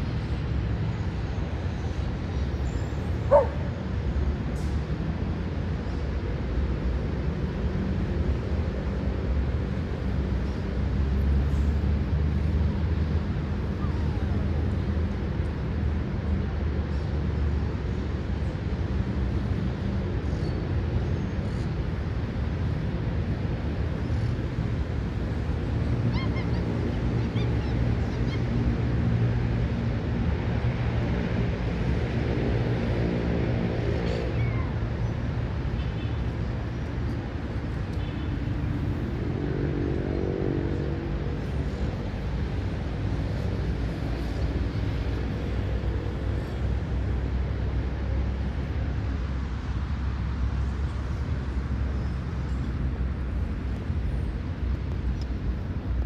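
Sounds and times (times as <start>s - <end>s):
distant city traffic rumble: 0.0s - 56.0s
dog yelp: 3.3s - 3.6s.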